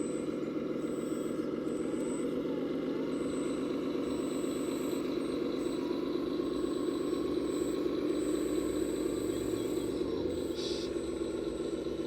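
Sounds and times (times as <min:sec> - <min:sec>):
model vehicle engine drone: 0:00.0 - 0:12.0.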